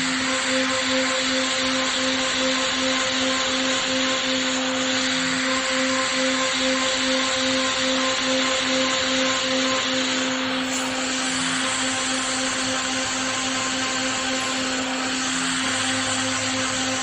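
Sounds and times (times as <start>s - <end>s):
cnc machine cutting metal: 7.0s - 17.0s.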